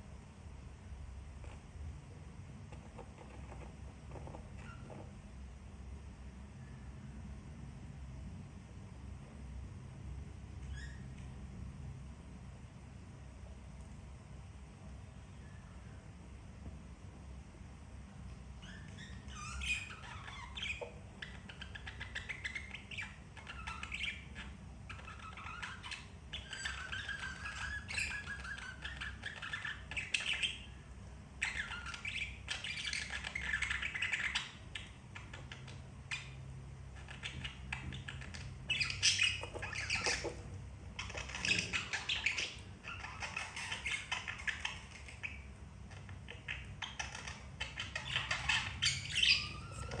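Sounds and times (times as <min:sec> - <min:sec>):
budgerigar chirping and chattering: 0:10.6 - 0:11.0, 0:18.6 - 0:50.0.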